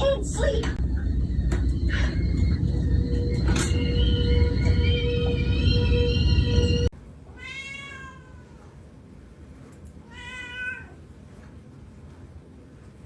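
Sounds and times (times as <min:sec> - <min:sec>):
loud music: 0:00.0 - 0:06.9
cat meowing: 0:07.3 - 0:08.7, 0:10.0 - 0:11.0.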